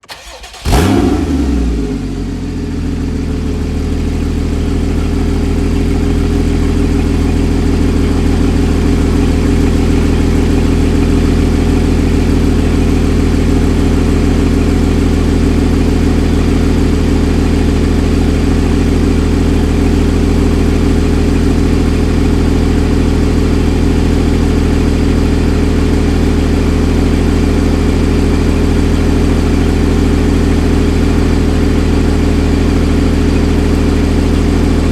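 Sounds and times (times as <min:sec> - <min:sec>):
car engine starting and idling: 0:00.0 - 0:34.9.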